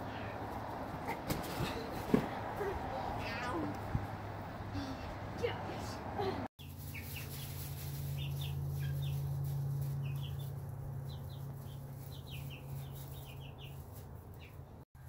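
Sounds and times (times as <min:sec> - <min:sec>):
chicks peeping: 0:06.6 - 0:14.6.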